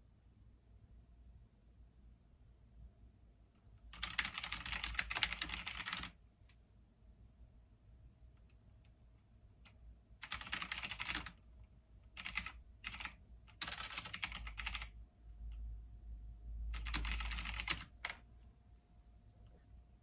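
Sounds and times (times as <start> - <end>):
computer keyboard typing: 3.9 - 6.2, 10.2 - 11.4, 12.1 - 15.0, 16.8 - 18.3
low steady hum: 11.3 - 20.0.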